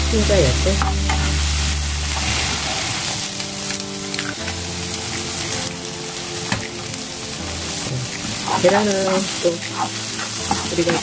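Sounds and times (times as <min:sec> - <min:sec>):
vegetables sizzling in hot oil: 0:00.0 - 0:11.0
spatula scraping pan: 0:07.7 - 0:11.0.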